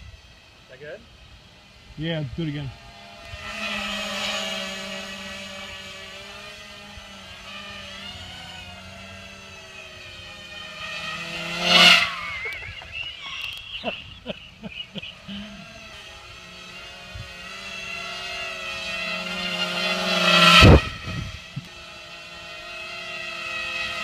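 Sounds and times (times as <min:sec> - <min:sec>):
drone buzzing: 0:00.0 - 0:24.0
sharp clicks: 0:12.4 - 0:14.0.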